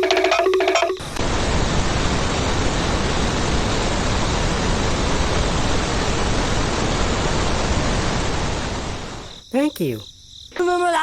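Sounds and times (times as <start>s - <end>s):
steady rushing hiss: 1.0s - 9.5s.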